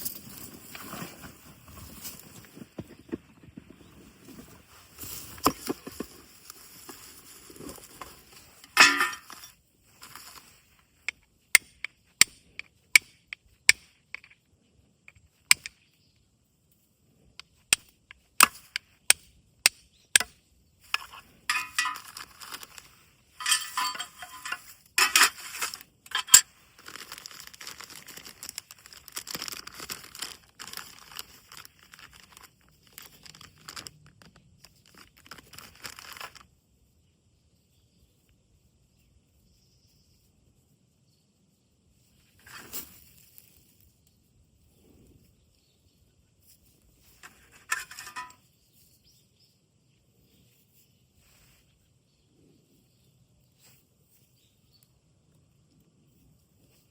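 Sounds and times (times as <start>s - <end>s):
handling rustle: 0.0s - 11.1s, 20.8s - 36.5s, 41.9s - 44.1s, 46.4s - 49.2s
steel striking flint: 8.6s - 9.6s, 17.7s - 22.4s, 23.4s - 26.5s, 47.5s - 48.4s.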